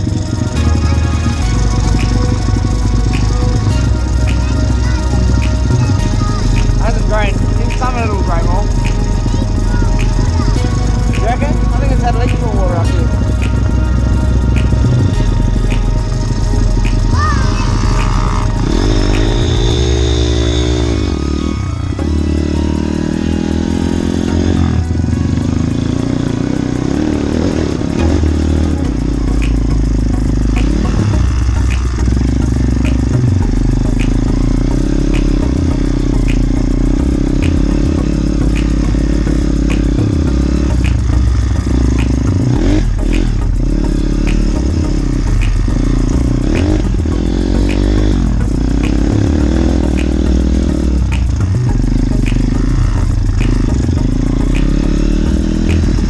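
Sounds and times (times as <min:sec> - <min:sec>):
small motorbike engines revving: 0:16.8 - 0:56.0
light regular ticking: 0:22.0 - 0:56.0.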